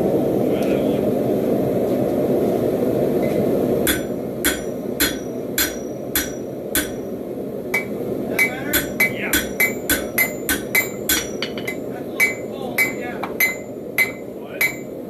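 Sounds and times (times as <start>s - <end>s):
hammer striking metal on anvil: 3.2s - 15.0s.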